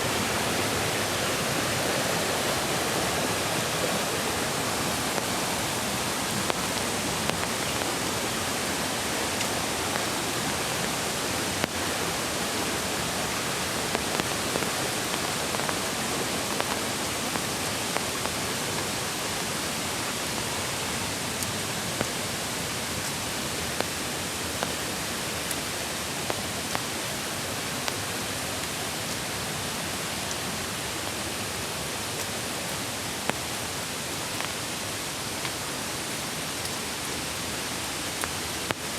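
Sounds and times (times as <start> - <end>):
creek water rushing: 0.0 - 38.9
raindrop ticks: 4.9 - 18.9.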